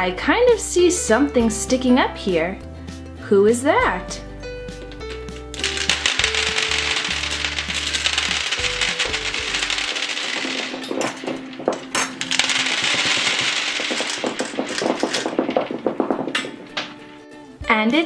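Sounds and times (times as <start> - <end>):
background music: 0.0 - 18.0
hard candies rattling: 5.0 - 16.6.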